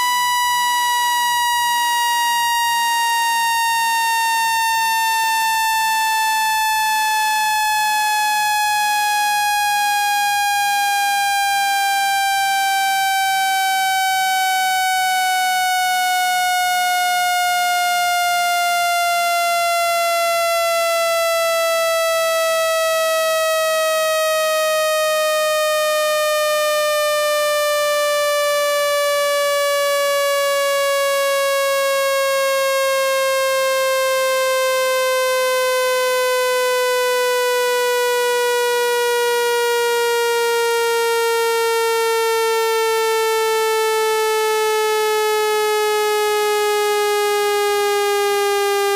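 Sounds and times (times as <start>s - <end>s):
buzzy electronic tone falling in pitch: 0.0s - 17.8s.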